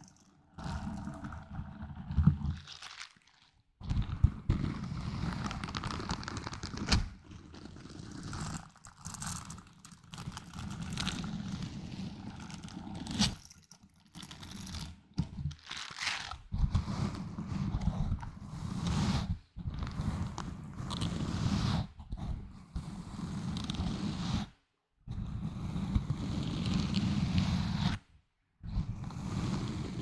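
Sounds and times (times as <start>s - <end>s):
crinkling: 0.0s - 3.6s, 12.2s - 16.4s
scratching small objects: 0.0s - 16.5s.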